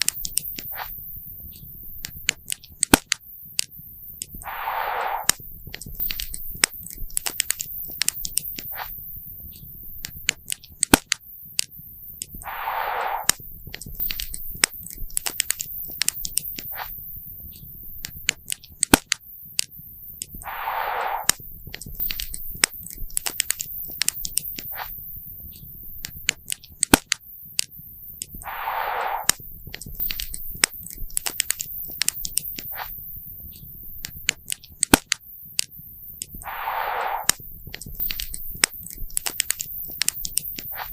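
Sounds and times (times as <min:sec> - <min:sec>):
brief hissing rush: 0:04.4 - 0:05.4, 0:12.4 - 0:13.4, 0:20.4 - 0:21.4, 0:28.4 - 0:29.4, 0:36.4 - 0:37.4.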